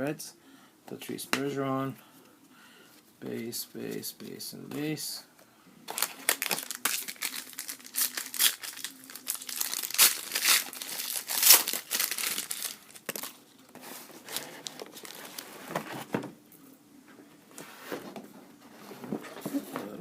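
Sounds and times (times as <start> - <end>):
foil wrapper crinkling and tearing: 5.9 - 13.5.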